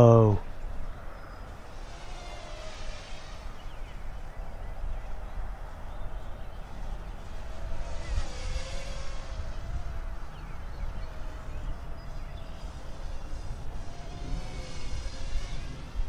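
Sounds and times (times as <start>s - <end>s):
quadcopter propellers whining: 0.0s - 16.0s
wind rumble on microphone: 0.0s - 16.0s.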